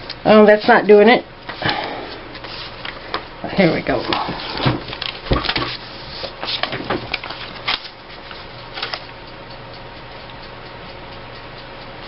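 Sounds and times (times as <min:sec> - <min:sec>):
background hum: 0:00.0 - 0:12.0
paper rustling and tapping: 0:04.0 - 0:07.9.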